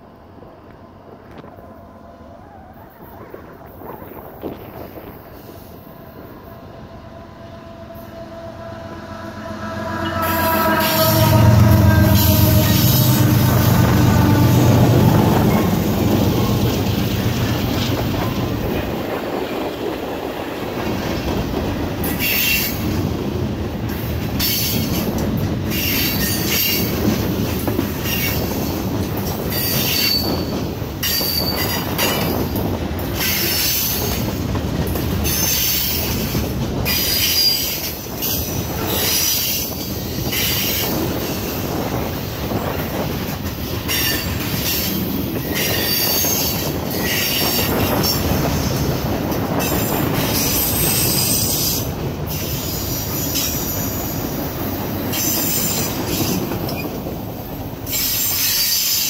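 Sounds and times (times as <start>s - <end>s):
train wheels rumbling on rail: 0.0s - 59.0s
high-pitched wheel squeals: 7.9s - 14.7s, 29.5s - 31.9s.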